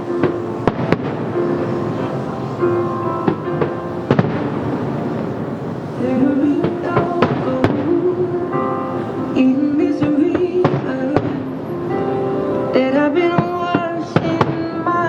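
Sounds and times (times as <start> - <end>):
music with held melody: 0.0 - 5.2
fireworks cracks and bangs: 0.0 - 8.6, 9.9 - 11.7, 13.2 - 15.0.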